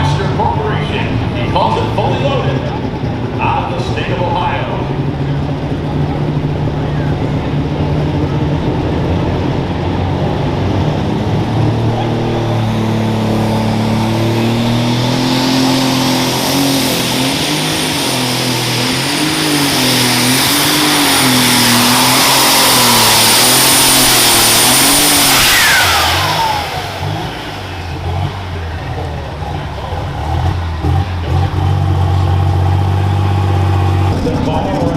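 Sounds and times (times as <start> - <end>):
tractor engine at full throttle: 0.0 - 34.9
turbocharger whistle: 13.6 - 28.7.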